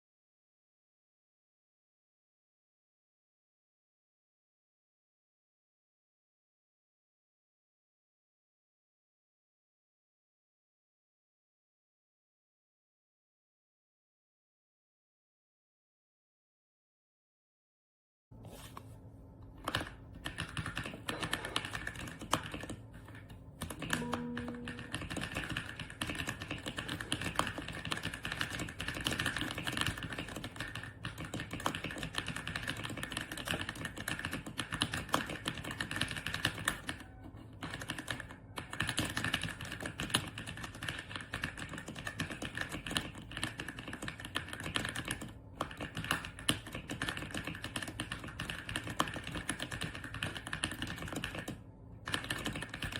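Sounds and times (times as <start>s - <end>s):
mechanical keyboard typing: 19.6s - 52.9s.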